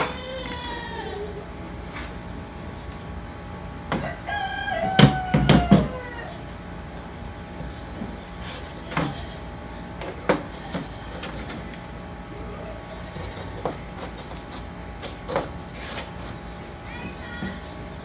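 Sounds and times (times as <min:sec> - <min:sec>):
metal parts and tools clicking: 0:11.4 - 0:11.8.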